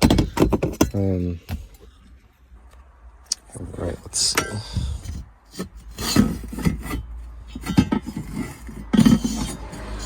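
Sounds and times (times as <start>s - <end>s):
car parts knocking: 0.0s - 2.0s, 4.4s - 10.0s.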